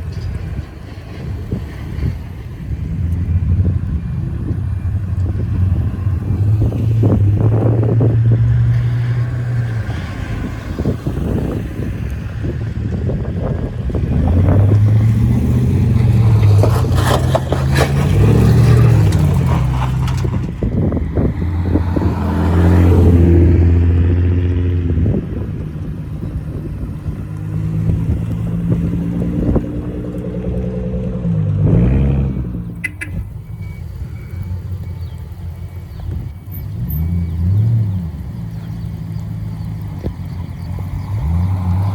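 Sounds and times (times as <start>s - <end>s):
cars driving past: 0.0s - 41.9s
engine revving blips: 3.0s - 41.9s.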